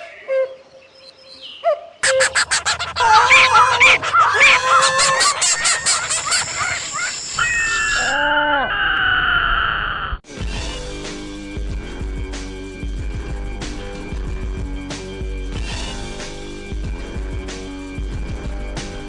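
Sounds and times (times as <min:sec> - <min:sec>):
squawking honking bird calls: 0:01.4 - 0:08.2
high tone sliding down: 0:02.0 - 0:08.2.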